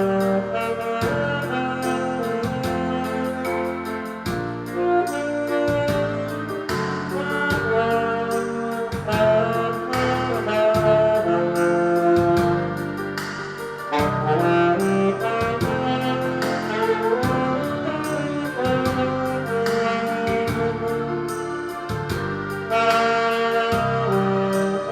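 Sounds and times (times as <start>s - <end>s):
backing track with drum beat: 0.0s - 24.9s
saxophone playing ballad melody: 0.0s - 24.9s.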